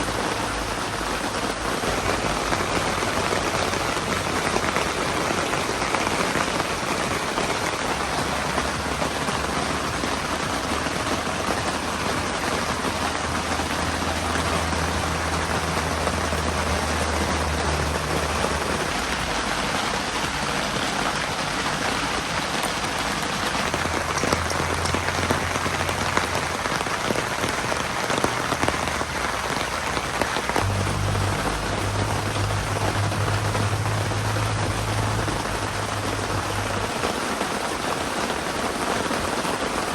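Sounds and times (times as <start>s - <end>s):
heavy rain hissing: 0.0s - 39.9s
low hum: 30.6s - 36.8s.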